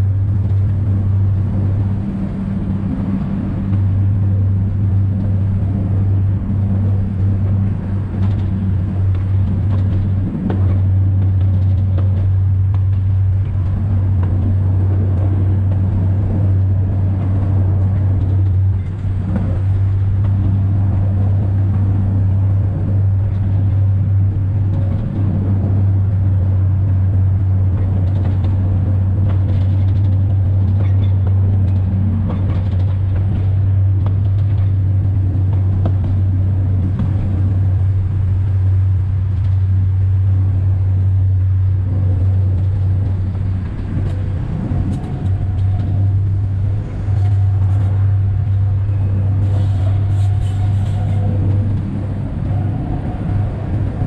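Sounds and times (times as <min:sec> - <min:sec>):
low diesel engine drone: 0:00.0 - 0:54.0
rumble of wheels on track: 0:00.0 - 0:54.0.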